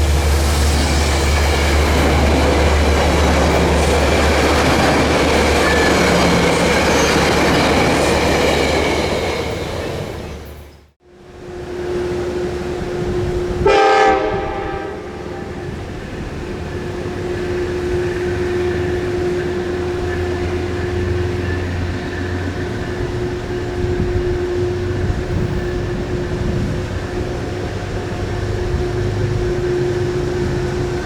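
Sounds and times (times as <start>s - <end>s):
train humming and rumbling: 0.0s - 31.0s
train horn blast: 11.4s - 31.0s.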